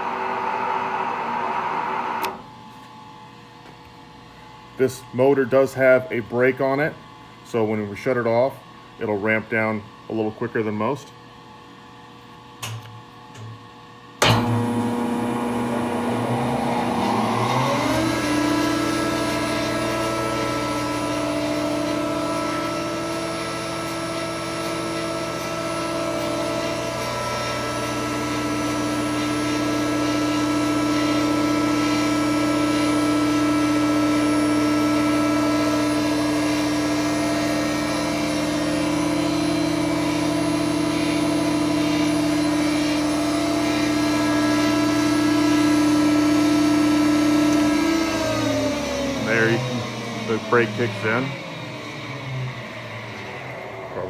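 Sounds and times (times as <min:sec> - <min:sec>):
planer motor whine: 0:00.0 - 0:02.5, 0:14.2 - 0:54.0.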